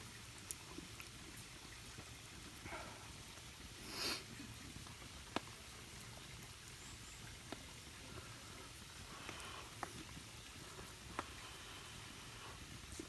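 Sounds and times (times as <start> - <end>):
faint ticks: 10.8 - 11.5.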